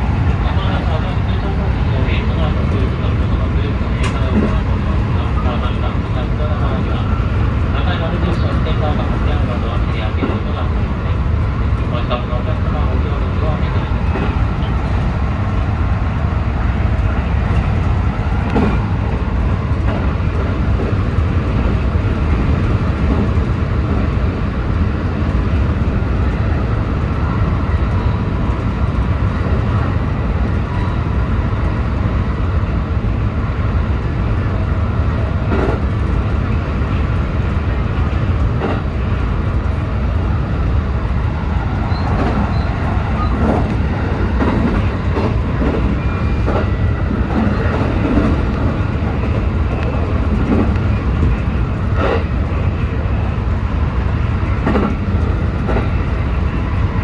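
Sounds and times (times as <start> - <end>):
track clacks: 0.0 - 57.0
train wheels rumbling: 0.0 - 57.0.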